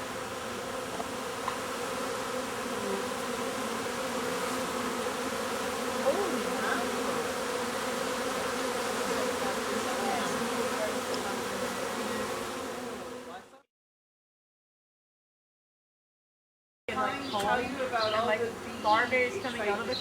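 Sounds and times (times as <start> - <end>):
bees buzzing: 0.0 - 13.6
single bee buzz bending in pitch: 0.0 - 13.6.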